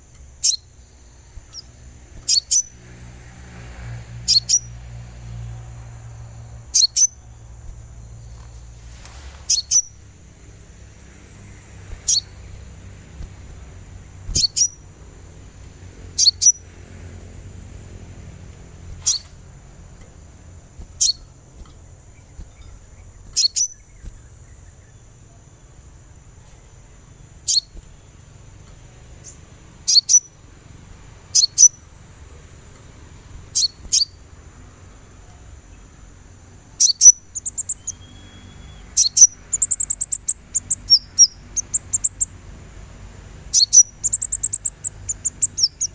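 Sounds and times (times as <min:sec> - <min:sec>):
sunbird chirps and twittering: 0:00.0 - 0:45.9.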